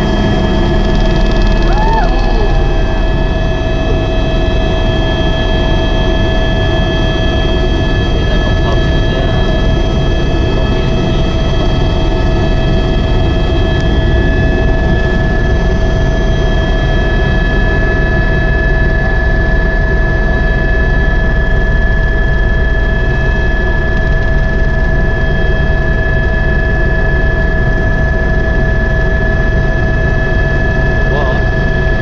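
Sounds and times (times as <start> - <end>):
high whine: 0.0 - 25.2
helicopter engine and rotor rumble: 0.0 - 32.0.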